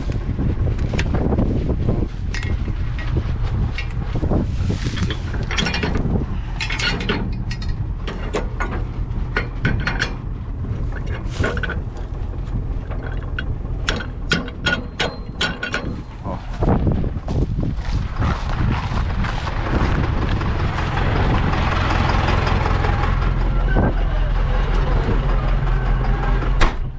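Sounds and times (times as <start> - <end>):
low engine rumble: 0.0 - 26.9
mechanical clicks and rattles: 5.0 - 16.2.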